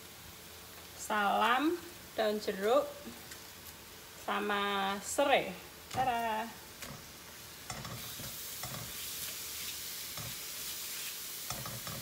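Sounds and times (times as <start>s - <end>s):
spice paste sizzling in a pan: 0.0s - 12.0s
wooden spatula scraping a pan: 6.8s - 12.0s.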